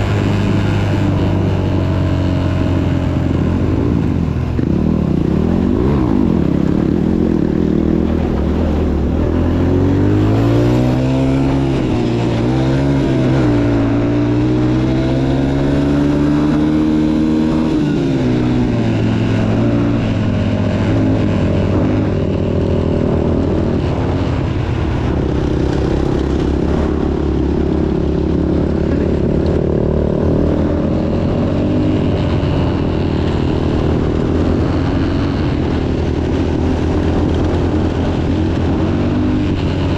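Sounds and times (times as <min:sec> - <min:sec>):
dirt bike engine revving: 0:00.0 - 0:24.5.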